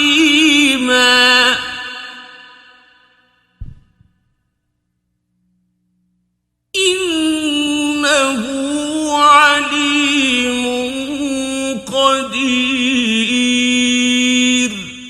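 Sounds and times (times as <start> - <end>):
man chanting melodic recitation: 6.8 - 15.0.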